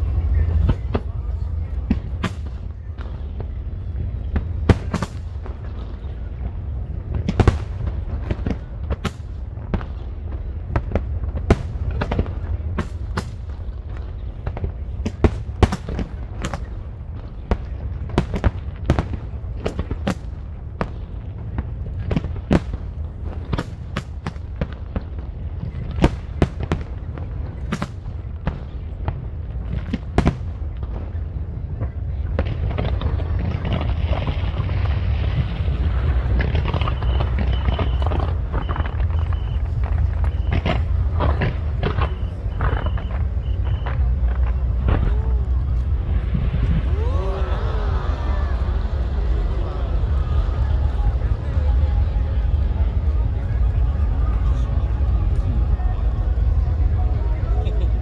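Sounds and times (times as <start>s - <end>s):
low rumble: 0.0s - 18.1s, 30.4s - 58.0s
fireworks cracking and popping: 0.0s - 58.0s.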